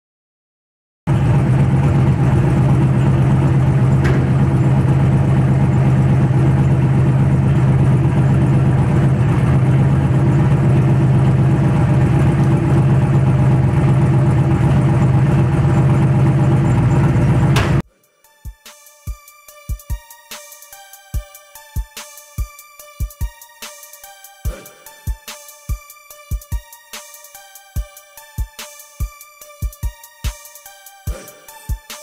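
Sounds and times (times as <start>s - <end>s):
car engine idling loudly: 1.1s - 17.8s.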